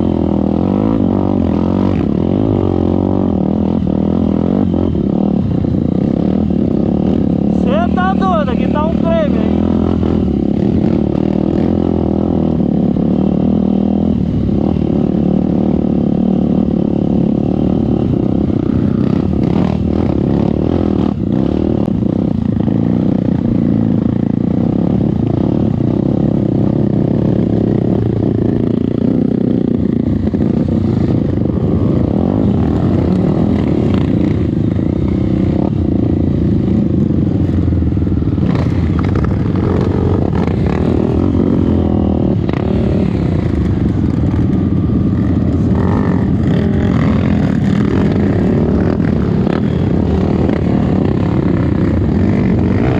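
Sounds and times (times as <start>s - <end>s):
dirt bike engine running: 0.0s - 52.9s.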